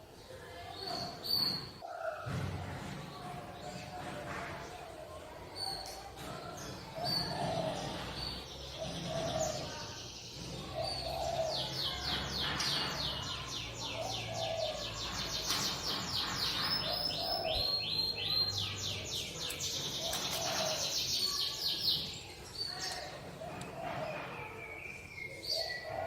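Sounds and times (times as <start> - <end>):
low coo: 7.0 - 8.1, 8.8 - 9.7, 25.5 - 26.0.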